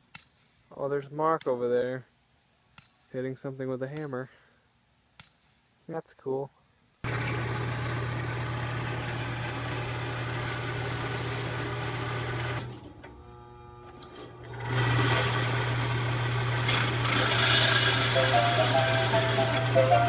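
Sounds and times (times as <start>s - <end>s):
machine humming: 7.0s - 20.0s.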